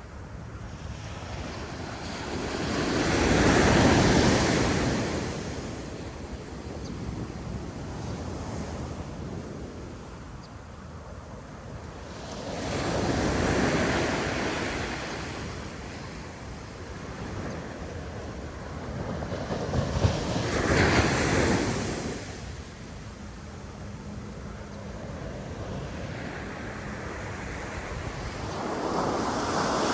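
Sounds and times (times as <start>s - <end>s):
waves crashing on a beach: 0.0s - 29.9s
wind on the microphone: 0.0s - 29.9s
steady surf hiss: 9.4s - 29.9s.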